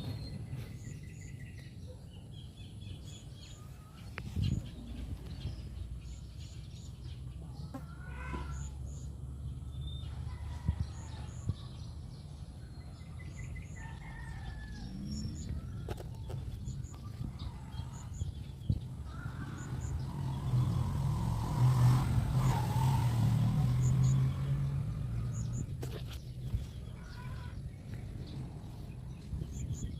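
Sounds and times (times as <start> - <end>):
rooster crowing: 13.7 - 15.2.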